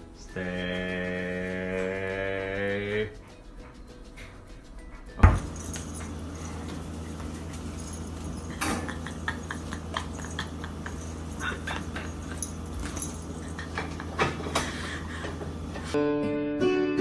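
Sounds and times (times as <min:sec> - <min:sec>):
steady low hum: 0:05.4 - 0:16.0.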